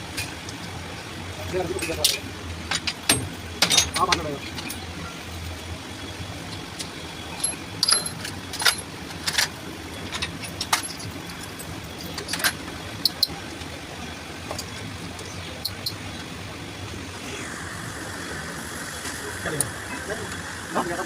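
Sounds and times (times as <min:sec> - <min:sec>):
steady low hum: 0:00.0 - 0:21.0
metal parts clinking: 0:07.3 - 0:09.5, 0:15.6 - 0:16.0.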